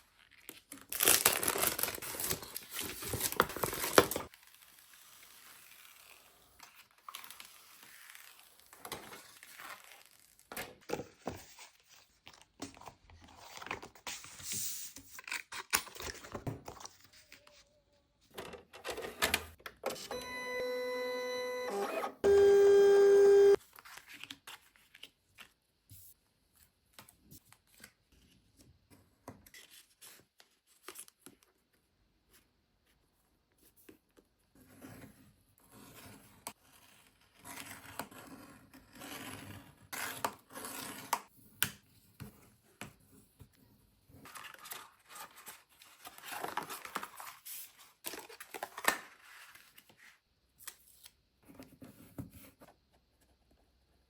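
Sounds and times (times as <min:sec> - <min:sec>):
loud electronic beep: 0:20.2 - 0:23.6.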